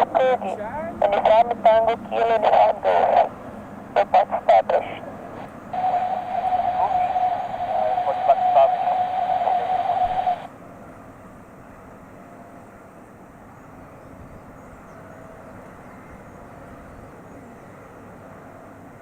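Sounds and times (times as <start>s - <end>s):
air traffic control radio: 0.0s - 10.5s
low hum: 0.0s - 10.5s
airport background noise: 0.0s - 11.6s.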